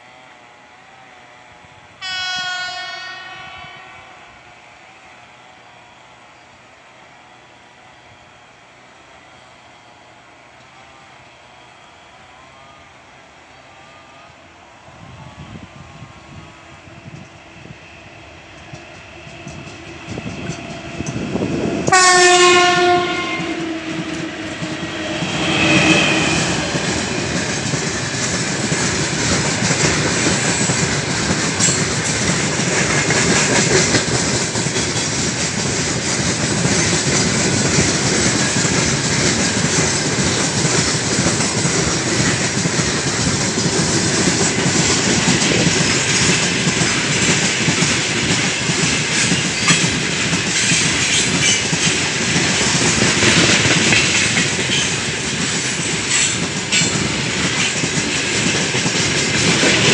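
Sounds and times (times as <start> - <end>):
locomotive horn: 2.0 - 4.5, 21.8 - 27.7
wheels clacking over rail joints: 18.5 - 59.9
freight wagons rumbling: 22.8 - 59.9.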